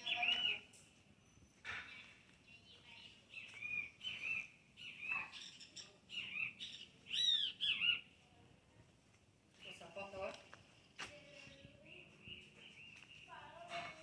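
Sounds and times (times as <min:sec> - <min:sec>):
bird chirping: 0:00.0 - 0:08.2, 0:11.2 - 0:14.0.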